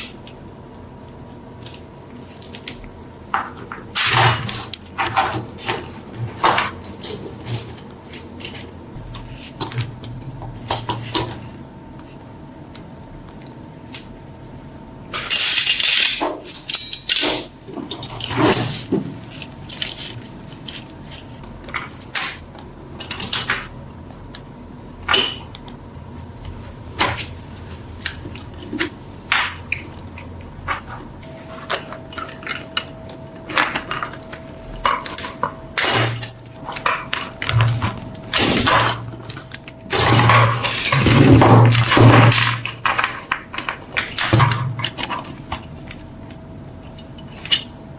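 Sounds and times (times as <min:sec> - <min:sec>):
small metal parts clinking: 0:15.2 - 0:22.4, 0:30.7 - 0:46.0, 0:46.8 - 0:47.8.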